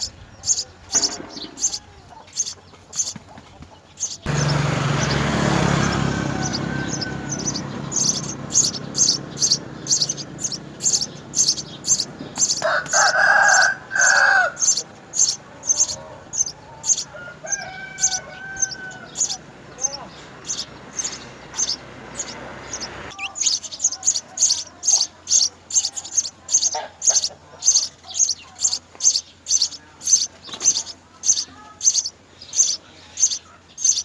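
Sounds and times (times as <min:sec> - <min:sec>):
sparrows chirping: 0:00.0 - 0:34.0
loud rushing noise with low hum: 0:04.3 - 0:12.6, 0:14.6 - 0:23.1
rooster crowing: 0:04.5 - 0:23.1.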